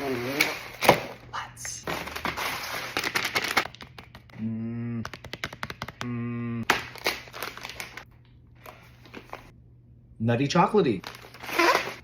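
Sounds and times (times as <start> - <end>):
person humming: 4.3 - 5.3, 6.0 - 6.7.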